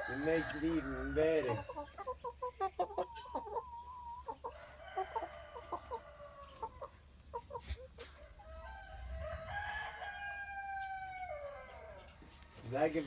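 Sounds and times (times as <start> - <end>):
chicken clucking: 0.0 - 13.0
rooster crowing: 8.4 - 12.1.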